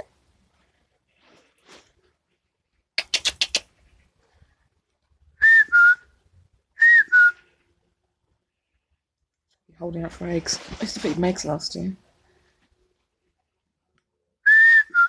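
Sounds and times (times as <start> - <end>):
person whistling two-note call: 6.8 - 7.4.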